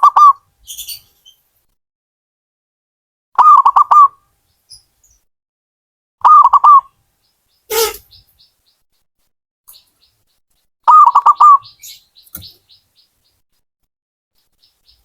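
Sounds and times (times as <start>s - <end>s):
dove cooing: 7.7s - 8.0s
faint high chirps: 7.7s - 8.5s.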